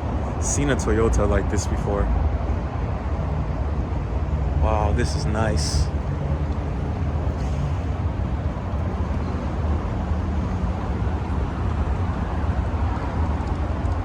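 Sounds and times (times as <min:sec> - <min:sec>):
parking lot noise: 0:00.0 - 0:14.0
car engine idling: 0:01.6 - 0:12.8.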